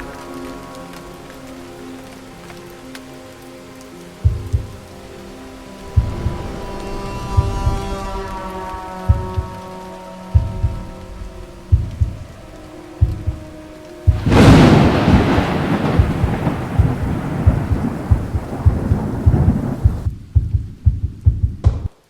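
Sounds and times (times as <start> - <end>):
rain: 0.0 - 22.0
thunderclap rumbling: 5.8 - 21.9.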